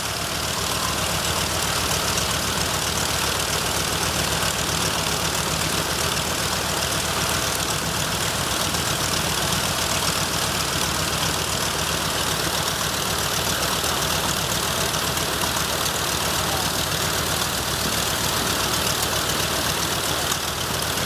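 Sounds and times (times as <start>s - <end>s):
radial aircraft engine running: 0.0s - 21.0s.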